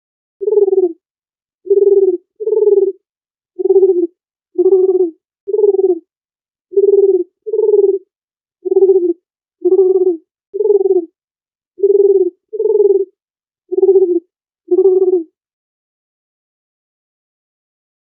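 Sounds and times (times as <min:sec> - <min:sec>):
dove cooing: 0:00.4 - 0:01.0, 0:01.7 - 0:03.0, 0:03.6 - 0:06.1, 0:06.7 - 0:11.2, 0:11.8 - 0:15.3.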